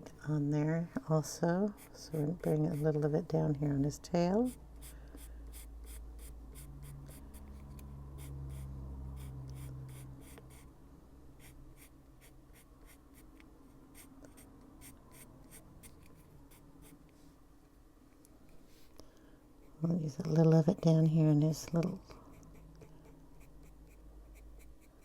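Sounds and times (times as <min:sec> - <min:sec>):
low steady hum: 0:00.0 - 0:25.0
pencil scratching on paper: 0:01.7 - 0:03.1, 0:05.2 - 0:10.7, 0:11.4 - 0:17.0, 0:22.3 - 0:25.0.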